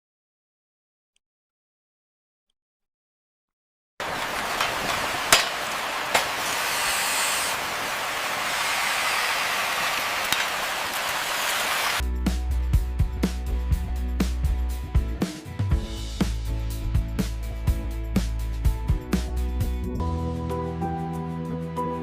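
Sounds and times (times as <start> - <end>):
spray-like hiss: 4.0 - 12.0
sharp knocks: 4.2 - 6.6
music with a beat: 12.0 - 20.4.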